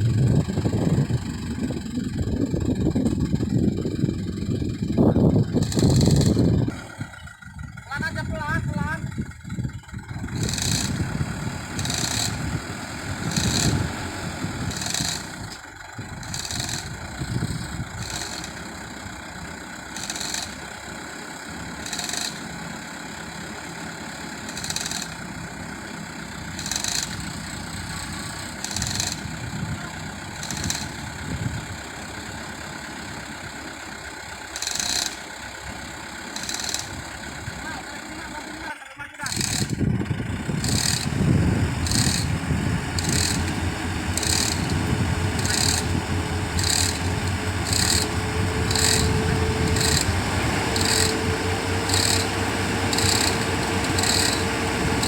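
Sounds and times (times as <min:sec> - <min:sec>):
dump truck engine idling: 0:00.0 - 0:55.0
high-pitched rasping bursts: 0:10.4 - 0:15.5, 0:16.2 - 0:18.6, 0:19.9 - 0:20.6, 0:21.8 - 0:22.4, 0:24.4 - 0:25.2, 0:26.5 - 0:29.3, 0:30.4 - 0:31.0, 0:34.6 - 0:35.2, 0:36.3 - 0:39.8, 0:40.4 - 0:55.0.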